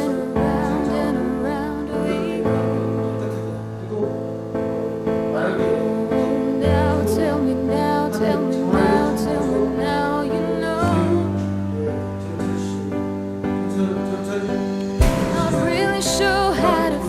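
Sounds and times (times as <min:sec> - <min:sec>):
guitar: 0:00.0 - 0:17.0
pop song with vocals: 0:00.0 - 0:17.0
bass line: 0:15.0 - 0:17.0.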